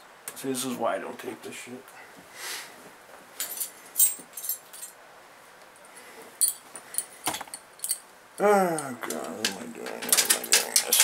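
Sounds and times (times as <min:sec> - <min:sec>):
metal wrenches clinking: 0:06.4 - 0:08.0, 0:09.9 - 0:11.0.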